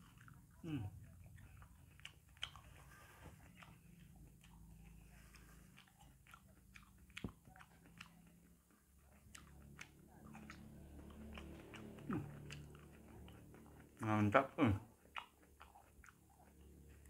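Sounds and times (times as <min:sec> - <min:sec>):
person chewing: 0:00.0 - 0:17.0
wet mouth clicks: 0:03.5 - 0:14.0, 0:14.8 - 0:16.9.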